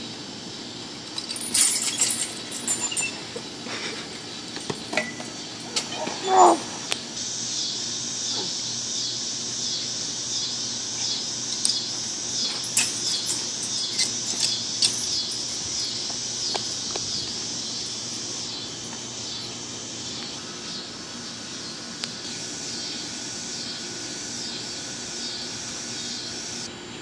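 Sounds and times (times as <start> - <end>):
birds chirping and squawking: 1.3 - 6.9, 10.5 - 20.2.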